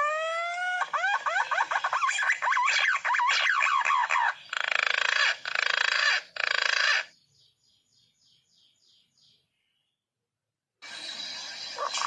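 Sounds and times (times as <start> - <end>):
faint high chirps: 10.8 - 12.0.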